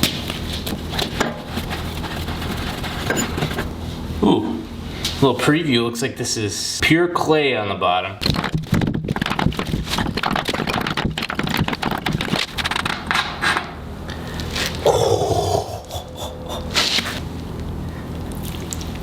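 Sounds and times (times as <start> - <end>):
scraping and knocking on tank: 0.7 - 3.7.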